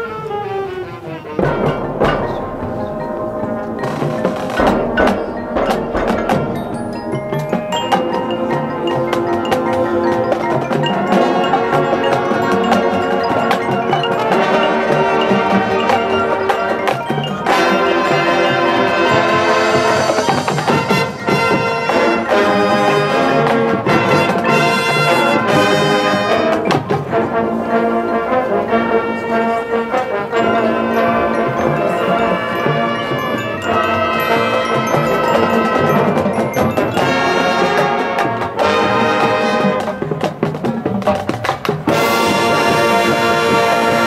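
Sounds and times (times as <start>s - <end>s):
marching band brass chords: 0.0s - 44.0s
marimba and xylophone: 1.0s - 44.0s
sharp percussion hits: 1.4s - 27.3s, 30.4s - 44.0s.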